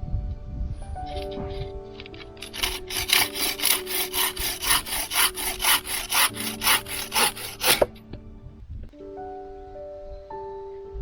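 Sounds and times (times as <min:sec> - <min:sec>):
hand saw cutting wood: 0:01.1 - 0:08.0.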